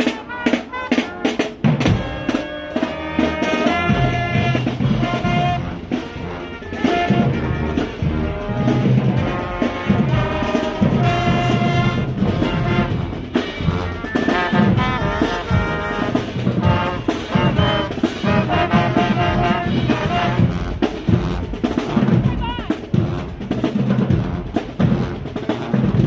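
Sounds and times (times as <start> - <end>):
drums: 0.0 - 26.0
marching band brass: 0.0 - 26.0.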